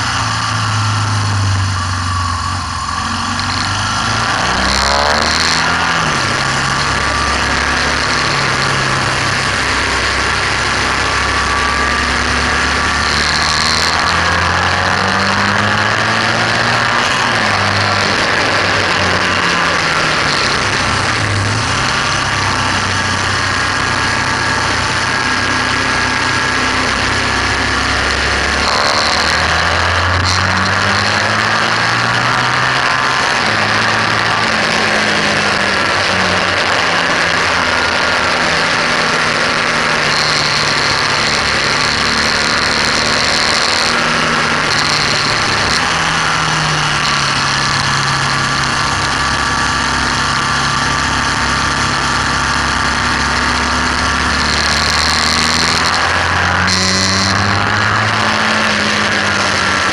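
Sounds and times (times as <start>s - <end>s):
motorcycle engine running hard: 0.0s - 59.9s.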